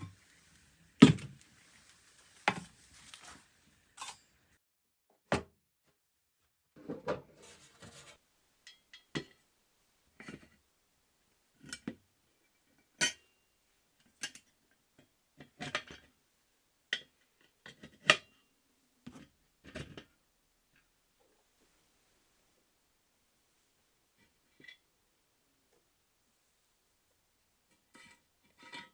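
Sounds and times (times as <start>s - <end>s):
metal stove parts clinking: 4.0s - 4.3s.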